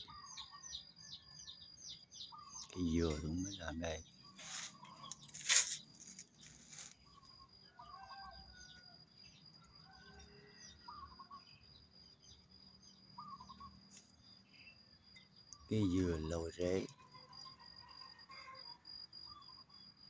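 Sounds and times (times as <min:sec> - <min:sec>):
small birds chirping: 0:00.0 - 0:20.0
brief rustling: 0:04.4 - 0:07.0.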